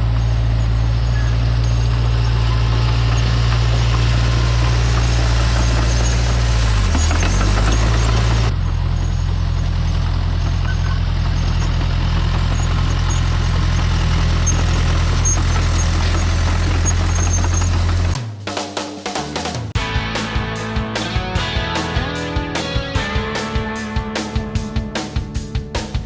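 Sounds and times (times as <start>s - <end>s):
earth-moving machine engine: 0.0s - 18.2s
guitar music: 19.8s - 26.0s.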